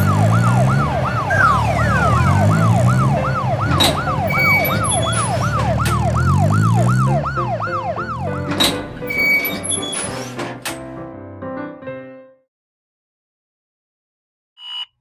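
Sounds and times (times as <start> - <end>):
engine revving: 0.0 - 9.3
police siren yelping: 0.0 - 9.6.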